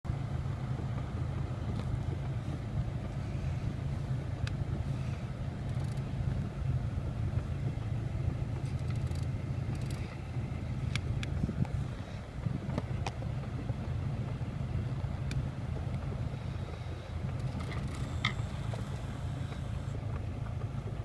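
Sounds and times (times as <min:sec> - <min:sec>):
car engine idling: 0:00.1 - 0:21.0.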